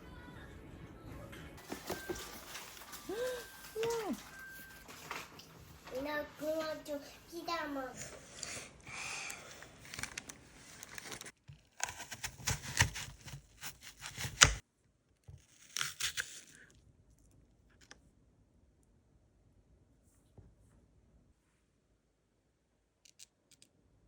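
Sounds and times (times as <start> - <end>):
tearing and crinkling: 1.6 - 6.0, 9.5 - 14.6, 15.4 - 16.8.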